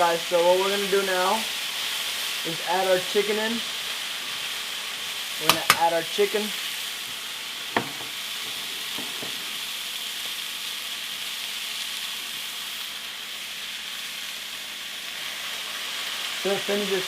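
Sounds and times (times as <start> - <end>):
food sizzling in a pan: 0.0 - 17.0
sharp knocks: 7.7 - 8.2.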